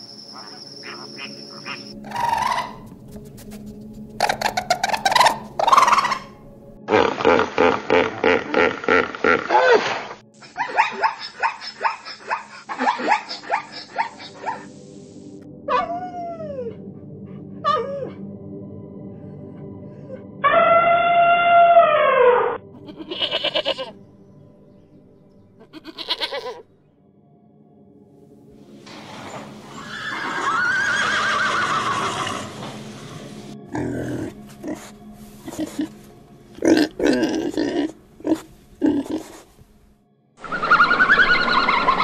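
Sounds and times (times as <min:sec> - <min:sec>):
zebra yelping barks: 0:00.8 - 0:02.9, 0:04.2 - 0:06.3, 0:10.4 - 0:14.7
horse whinnying: 0:29.6 - 0:32.6, 0:40.4 - 0:42.0.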